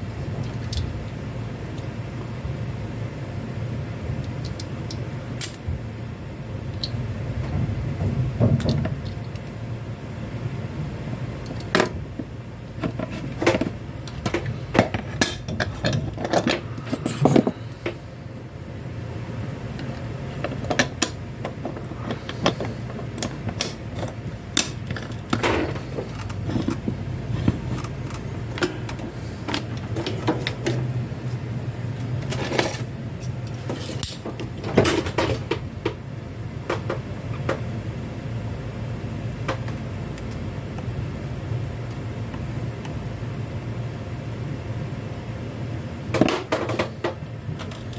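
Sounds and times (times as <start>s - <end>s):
steady low hum: 0.0s - 47.9s
small parts and tools clattering: 12.8s - 18.0s, 19.8s - 30.9s, 32.2s - 35.6s.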